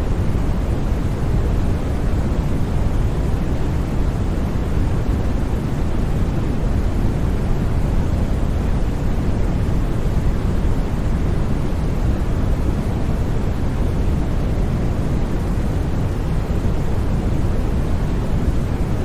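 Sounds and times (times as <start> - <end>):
deep white noise: 0.0 - 19.0.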